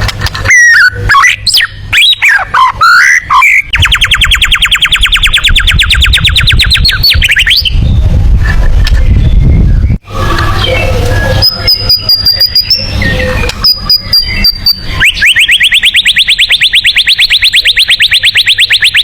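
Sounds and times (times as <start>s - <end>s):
bird trilling rising chirps: 0.4s - 8.0s, 9.0s - 19.0s
songbird singing: 0.4s - 8.0s, 8.9s - 19.0s
low rumble: 3.7s - 15.1s.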